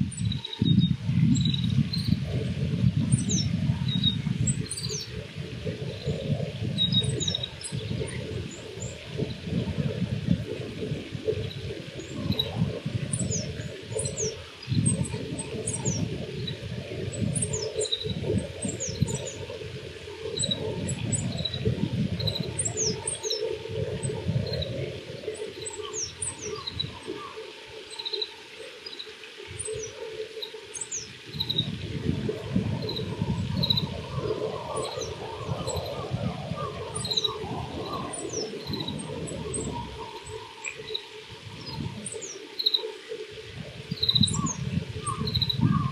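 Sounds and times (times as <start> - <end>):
bird singing high twitters: 34.8 - 42.9, 43.9 - 45.9.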